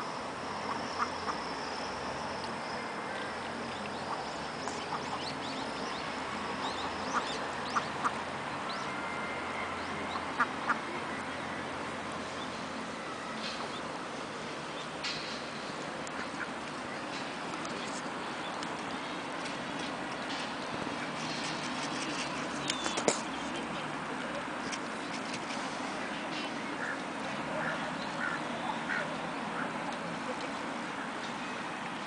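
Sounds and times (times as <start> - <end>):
ducks quacking: 26.8 - 29.8.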